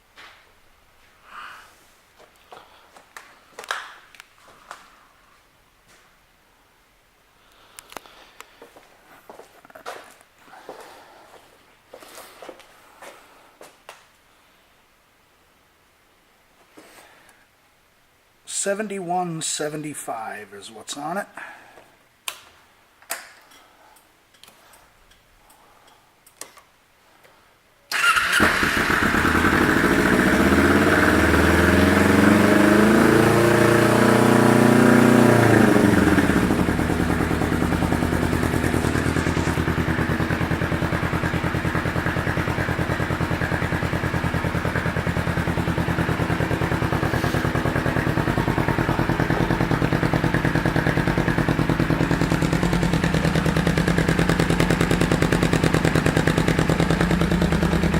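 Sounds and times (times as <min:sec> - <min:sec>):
motorcycle engine starting and idling: 0:27.9 - 0:57.9.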